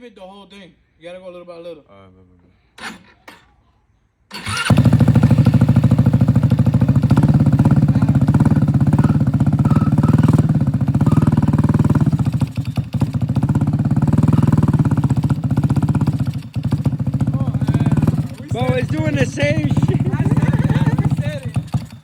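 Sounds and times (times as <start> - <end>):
small engine putter: 4.3 - 22.0
people talking: 7.6 - 11.6, 17.3 - 21.8.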